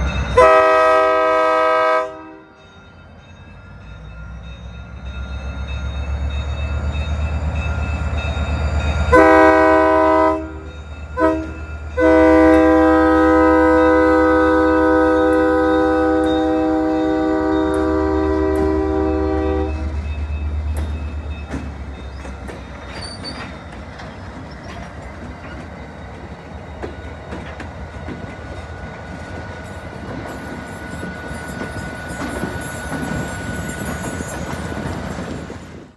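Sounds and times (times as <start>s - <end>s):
locomotive air horn chord: 0.4s - 2.6s, 9.1s - 20.0s
locomotive engine rumble: 4.4s - 35.9s
thin wheel squeal: 22.2s - 23.7s.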